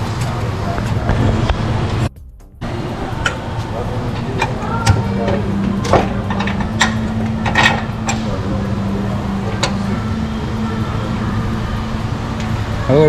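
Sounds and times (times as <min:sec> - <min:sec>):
steady low hum: 0:00.0 - 0:13.0
metal tools clanking: 0:03.1 - 0:10.2.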